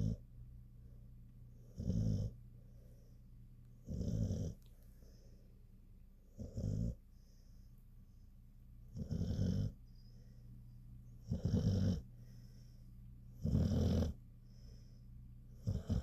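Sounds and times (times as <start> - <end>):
dog snoring: 0.0 - 0.2, 1.6 - 2.4, 3.8 - 4.7, 6.3 - 7.0, 8.9 - 9.8, 11.2 - 12.3, 13.4 - 14.2, 15.5 - 16.0.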